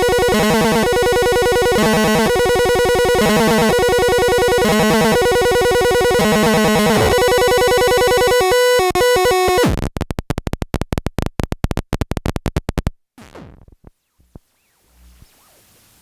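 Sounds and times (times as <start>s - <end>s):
buzzy synth tone: 0.0s - 9.9s.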